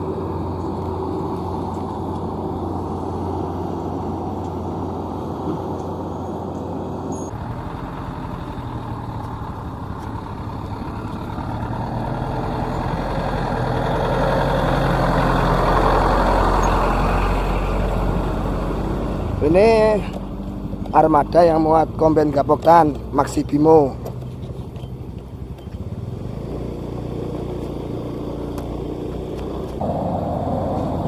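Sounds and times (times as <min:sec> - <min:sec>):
heavy diesel engines running: 0:00.0 - 0:31.0
deep rumble: 0:29.7 - 0:31.0.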